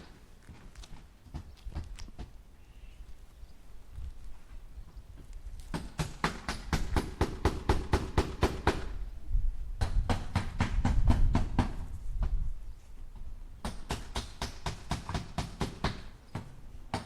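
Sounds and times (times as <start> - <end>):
hammer driving nails into wood: 13.6 - 17.0.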